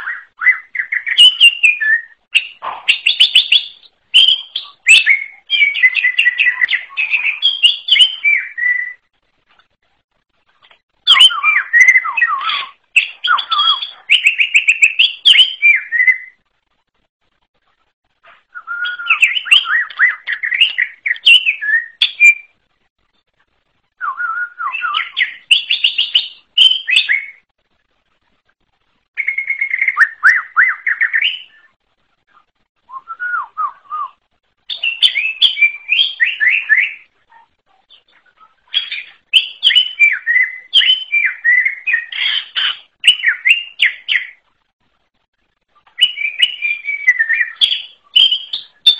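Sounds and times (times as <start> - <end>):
bird singing whistled phrases: 0.0 - 9.1, 11.0 - 16.4, 18.5 - 22.5, 24.0 - 27.4, 29.2 - 31.7, 32.9 - 37.1, 38.3 - 44.4, 46.0 - 48.9.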